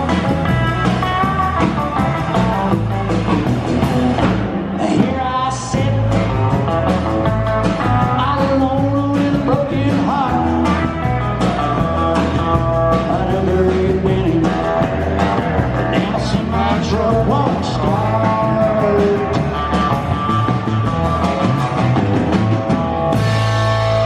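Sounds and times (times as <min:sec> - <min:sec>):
live country band playing: 0:00.0 - 0:24.0.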